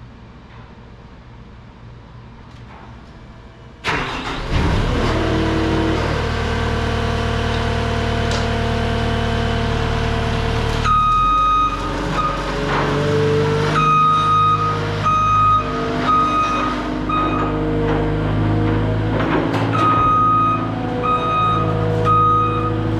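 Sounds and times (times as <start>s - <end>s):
diesel engine starting and running: 3.7s - 22.9s
backup alarm beeping: 10.8s - 12.4s, 13.8s - 17.6s, 19.8s - 22.9s.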